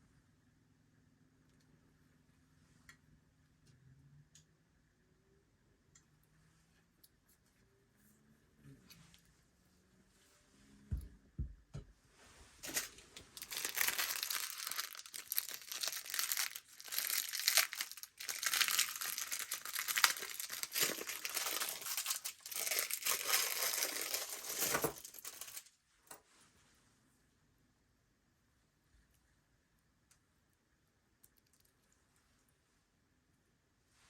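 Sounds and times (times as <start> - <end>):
packaging crinkling and tearing: 12.6 - 25.7.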